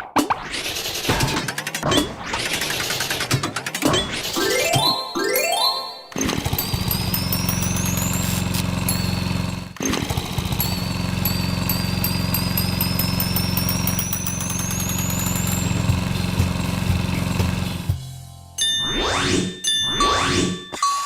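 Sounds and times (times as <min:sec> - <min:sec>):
machine-like rattle: 0:00.5 - 0:04.5, 0:06.1 - 0:17.9.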